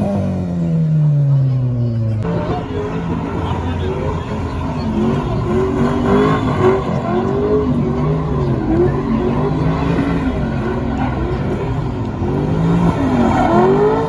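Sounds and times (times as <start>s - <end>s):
car engine revving: 0.0s - 14.0s
steady noisy rumble: 1.4s - 14.0s.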